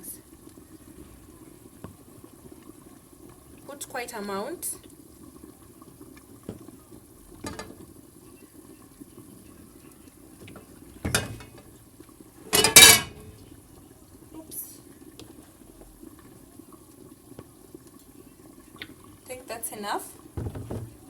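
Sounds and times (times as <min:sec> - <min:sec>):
faint low background hum: 0:00.0 - 0:21.0
cookware knocking: 0:07.4 - 0:07.8, 0:11.0 - 0:11.6, 0:12.5 - 0:13.3, 0:20.4 - 0:21.0
ringing metal clang: 0:12.6 - 0:13.2.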